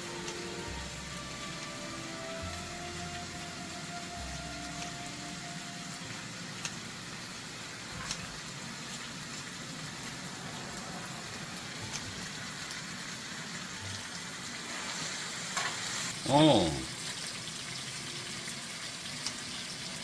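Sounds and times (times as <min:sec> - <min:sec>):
meat sizzling in a pot: 0:00.0 - 0:20.0
utensils clicking against pot: 0:08.0 - 0:08.4.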